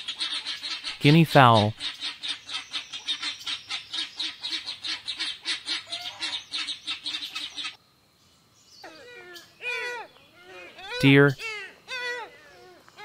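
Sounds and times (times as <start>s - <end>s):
guinea fowl cackling: 0.0s - 7.8s.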